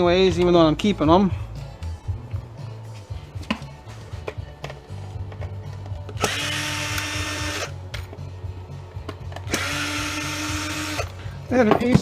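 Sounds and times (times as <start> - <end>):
power drill whining: 6.2 - 7.8, 9.5 - 11.2.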